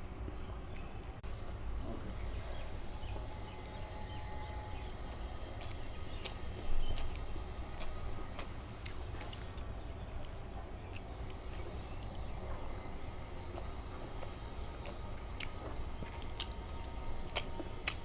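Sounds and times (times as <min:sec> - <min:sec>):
chewing and mouth sounds: 0:04.9 - 0:18.0.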